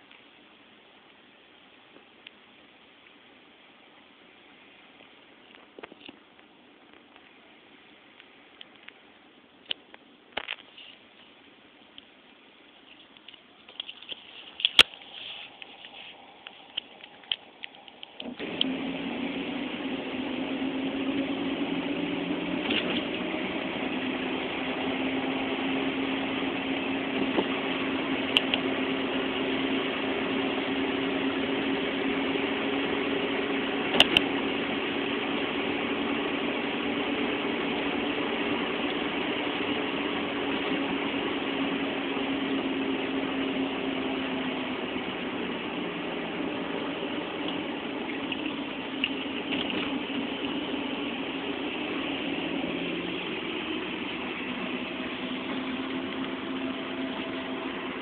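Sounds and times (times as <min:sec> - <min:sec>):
car engine humming: 0:14.5 - 0:58.0.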